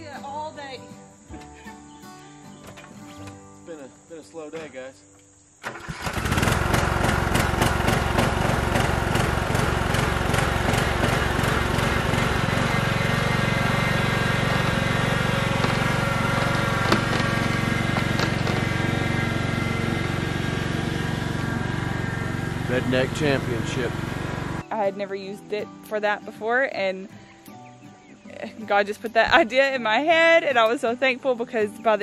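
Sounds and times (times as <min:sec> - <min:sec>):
riding mower engine running: 0:05.6 - 0:24.9.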